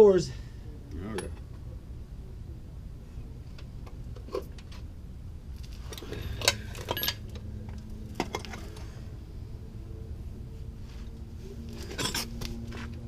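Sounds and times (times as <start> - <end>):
low hum: 0.3 - 13.0
metal tools clinking: 5.9 - 7.3, 11.8 - 12.4.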